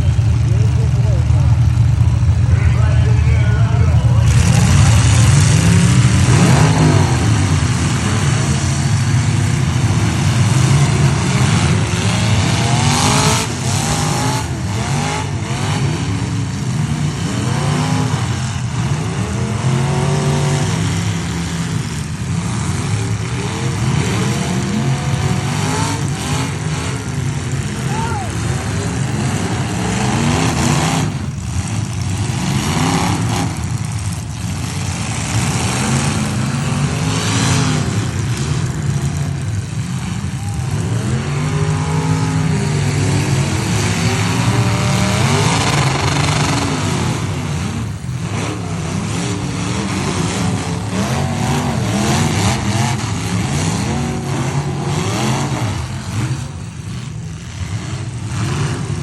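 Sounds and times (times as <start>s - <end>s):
truck engines revving hard: 0.0s - 59.0s.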